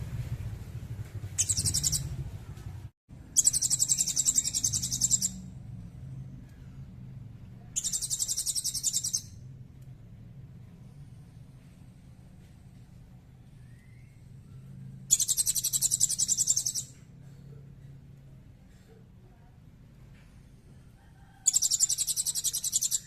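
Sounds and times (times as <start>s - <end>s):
low steady hum: 0.0s - 23.0s
songbird high-pitched trill: 1.4s - 2.1s, 3.4s - 5.5s, 7.8s - 9.4s, 15.1s - 17.0s, 21.5s - 23.0s.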